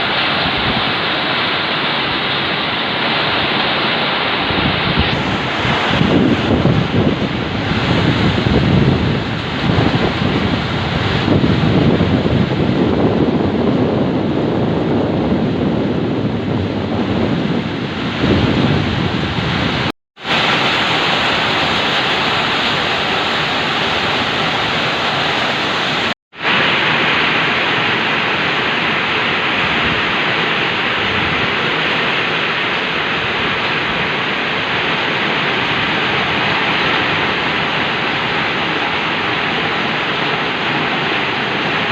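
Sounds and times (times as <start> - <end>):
heavy rain falling: 0.0 - 41.9
wind rumbling on microphone: 0.0 - 41.9.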